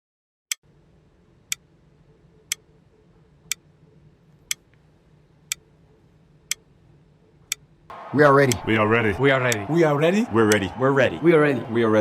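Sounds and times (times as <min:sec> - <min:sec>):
faint low hum: 0:00.7 - 0:12.0
clock ticking: 0:08.5 - 0:08.7.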